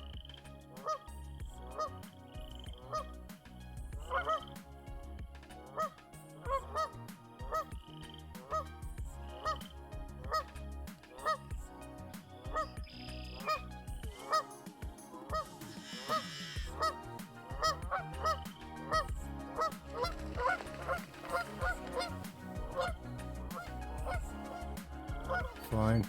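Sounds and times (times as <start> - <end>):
geese honking: 0.8 - 1.0, 1.7 - 3.2, 4.0 - 4.6, 5.6 - 7.7, 8.4 - 8.7, 9.3 - 10.5, 11.1 - 11.5, 12.5 - 13.6, 14.2 - 26.0.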